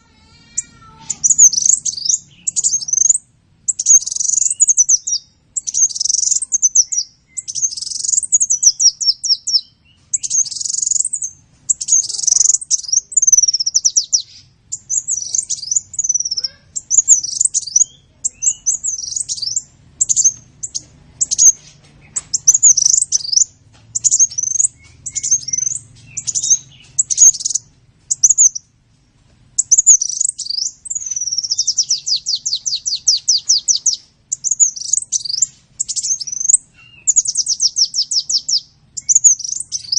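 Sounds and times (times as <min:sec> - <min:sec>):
bird fast trill: 0:00.0 - 0:28.7, 0:29.6 - 0:39.9
sunbird chirps and twitters: 0:00.0 - 0:28.7, 0:29.6 - 0:39.9.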